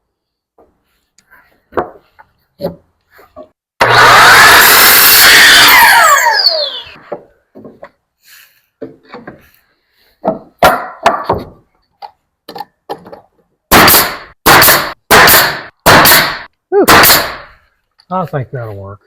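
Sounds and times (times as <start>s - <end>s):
power saw spinning down: 3.8s - 7.0s
wood boards knocking: 10.2s - 11.6s.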